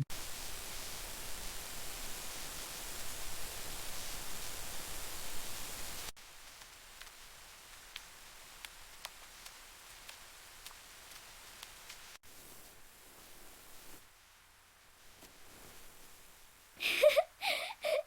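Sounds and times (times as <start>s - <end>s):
faint ticks: 6.5s - 12.2s.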